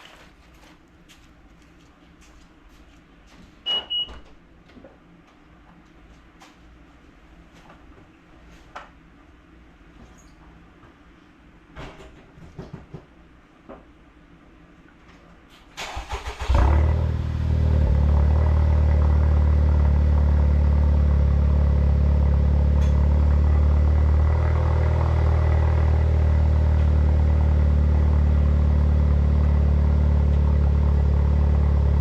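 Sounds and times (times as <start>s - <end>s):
car engine starting: 15.8s - 32.0s
car engine idling: 16.1s - 32.0s.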